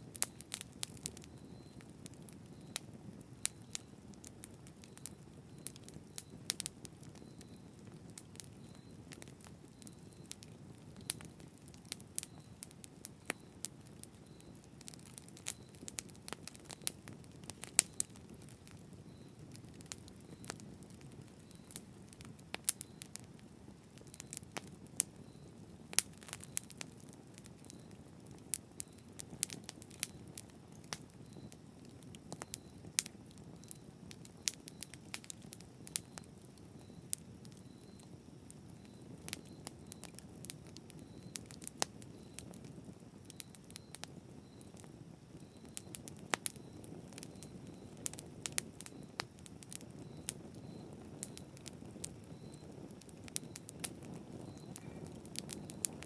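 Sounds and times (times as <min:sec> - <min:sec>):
burning wood crackling and popping: 0:00.0 - 0:56.0
campfire flame rumble: 0:00.0 - 0:56.0.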